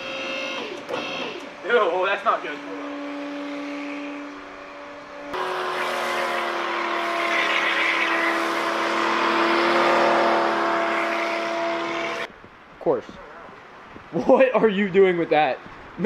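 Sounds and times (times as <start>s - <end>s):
engine droning at raised revs: 2.3s - 12.3s.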